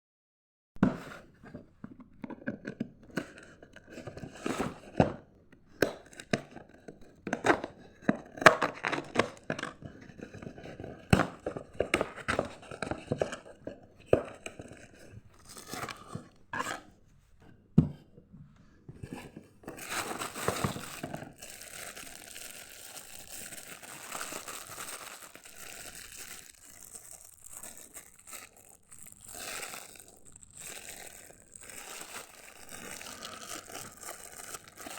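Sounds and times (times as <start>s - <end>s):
plastic crinkling: 19.7s - 34.9s
plastic packaging tearing: 19.8s - 34.9s.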